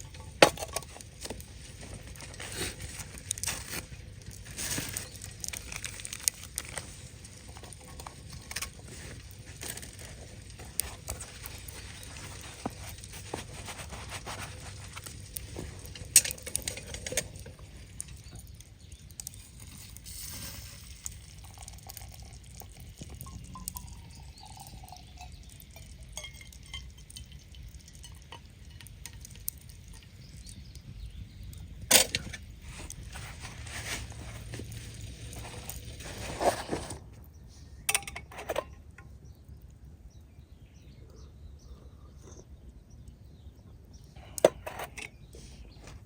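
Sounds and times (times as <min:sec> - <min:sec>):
small clinks and knocks: 0:00.0 - 0:30.6, 0:37.9 - 0:39.1.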